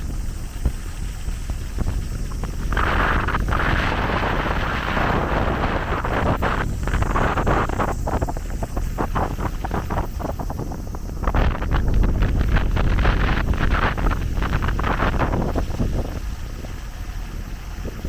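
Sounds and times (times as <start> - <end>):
rushing hiss: 0.0 - 18.0
wind buffeting microphone: 0.0 - 18.0.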